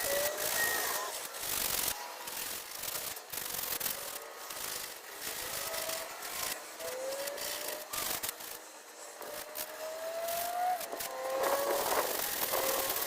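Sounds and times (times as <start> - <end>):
faint squeak: 0.0 - 1.2
sandpaper rubbing wood: 1.6 - 8.6, 9.5 - 13.0.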